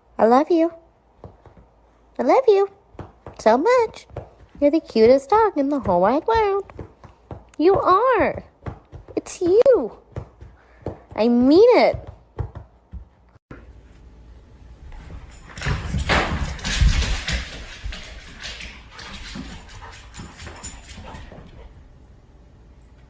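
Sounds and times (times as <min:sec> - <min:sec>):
dull thumps: 0:02.9 - 0:13.2.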